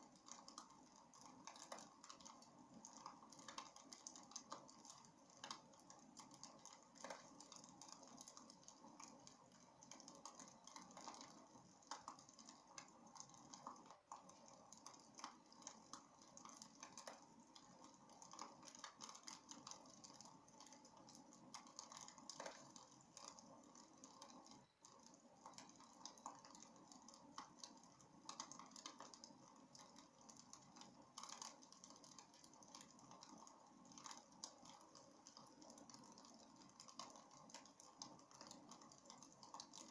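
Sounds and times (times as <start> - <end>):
wood crackling in a fireplace: 0.0 - 39.9.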